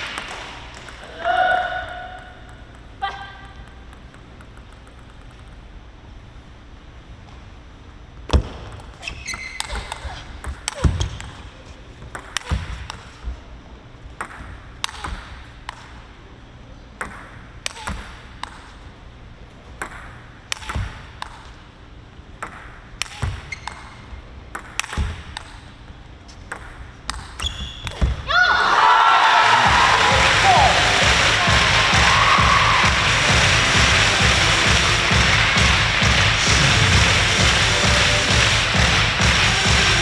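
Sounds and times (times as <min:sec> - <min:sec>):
hall echo: 0:00.0 - 0:04.0, 0:28.5 - 0:40.0
table tennis ball clicking: 0:01.9 - 0:06.0, 0:08.7 - 0:13.1, 0:19.8 - 0:21.6, 0:22.4 - 0:25.7, 0:26.4 - 0:27.4.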